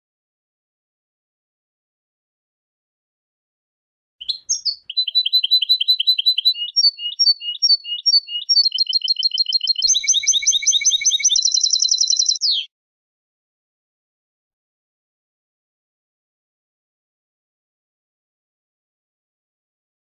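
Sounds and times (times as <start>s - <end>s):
goldfinch singing: 4.2s - 12.7s.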